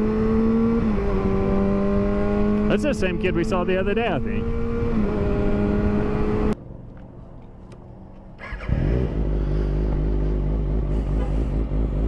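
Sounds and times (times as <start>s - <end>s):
vehicle engine running: 8.2s - 12.0s.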